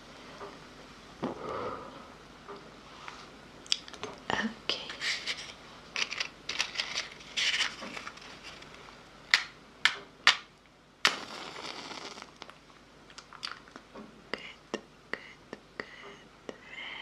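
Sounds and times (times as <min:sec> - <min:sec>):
mouth clicks and crackles: 0:11.0 - 0:14.8.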